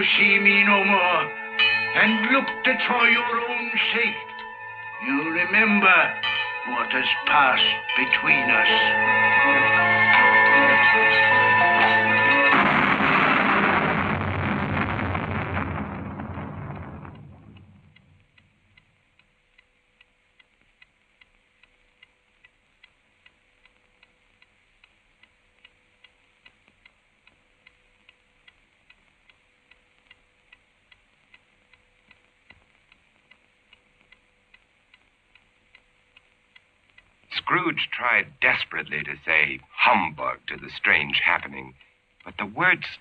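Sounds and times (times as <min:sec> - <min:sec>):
clock ticking: 0:00.0 - 0:13.0, 0:16.3 - 0:43.0
loud noise: 0:05.1 - 0:18.2.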